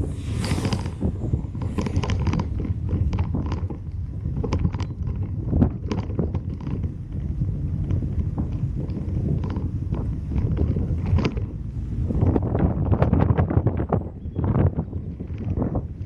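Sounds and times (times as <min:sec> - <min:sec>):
brief hiss: 0:00.0 - 0:02.4
sharp clicks and ticks: 0:00.0 - 0:11.5
road and engine rumble: 0:00.0 - 0:16.0.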